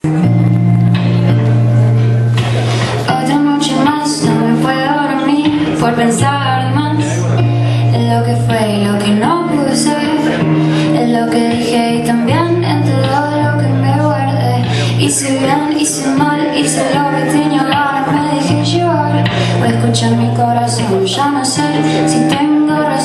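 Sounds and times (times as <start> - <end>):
woman singing: 3.0 - 23.0.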